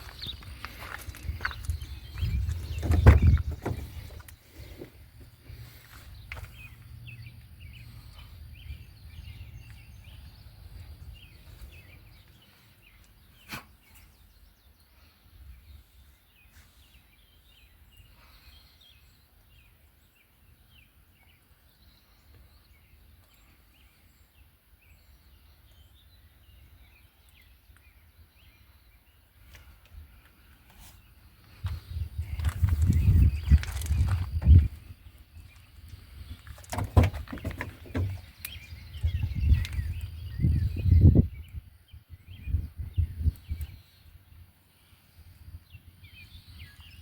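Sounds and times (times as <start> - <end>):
wind rumble on microphone: 0.0 - 4.7, 5.5 - 12.2, 31.5 - 44.5
small birds chirping: 0.0 - 47.0.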